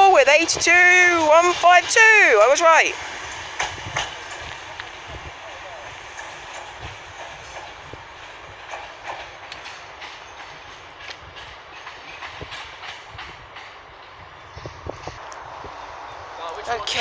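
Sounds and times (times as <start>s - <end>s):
train rumbling along track: 0.0s - 17.0s
wheels clattering over rail joints: 0.0s - 17.0s.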